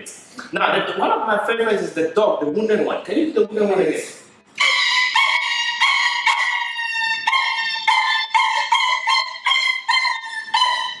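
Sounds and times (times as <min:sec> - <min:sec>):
man imitating whining dog yelps: 0:04.6 - 0:11.0.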